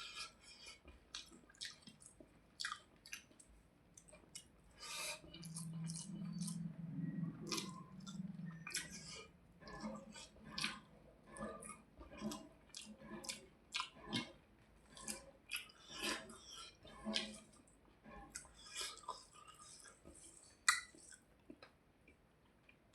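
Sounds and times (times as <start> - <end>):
close chewing with wet clicks: 0.0 - 22.9
low steady hum: 1.9 - 15.0.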